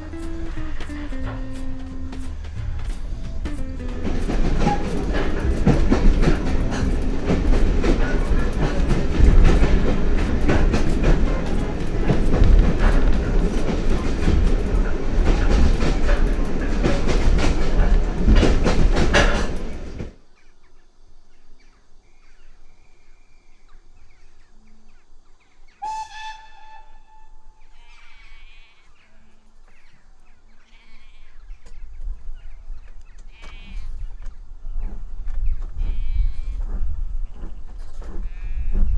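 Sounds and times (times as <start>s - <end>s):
train whistle: 0.0s - 18.2s, 25.8s - 28.8s
wheels clattering over rails: 0.0s - 20.2s
train rumbling: 0.0s - 20.3s, 25.8s - 27.9s, 33.9s - 38.9s.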